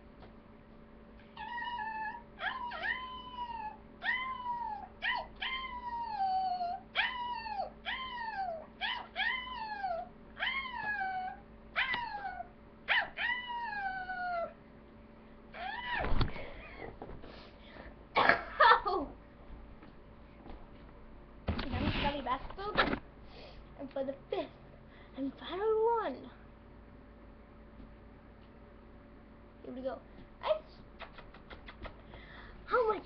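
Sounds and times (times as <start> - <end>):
young dog whining cries: 1.2 - 14.6, 15.5 - 16.9.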